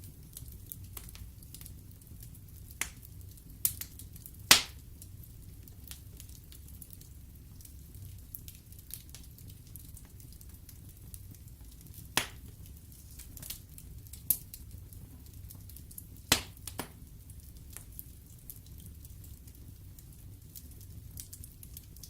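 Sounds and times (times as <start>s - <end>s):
fire burning in fireplace: 0.0s - 22.0s
sharp fire pops: 2.8s - 4.9s, 12.0s - 14.4s, 16.2s - 17.0s
logs crackling: 4.5s - 4.8s.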